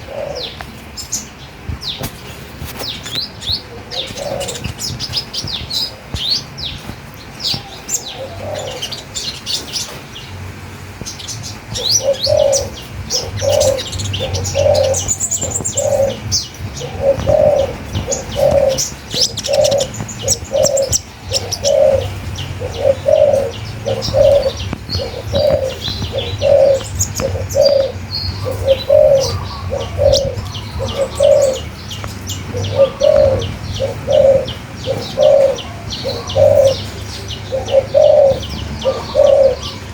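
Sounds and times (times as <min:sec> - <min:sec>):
low cooing call: 0:00.0 - 0:00.8, 0:07.5 - 0:09.5, 0:11.4 - 0:39.9
birds chirping: 0:00.0 - 0:39.9.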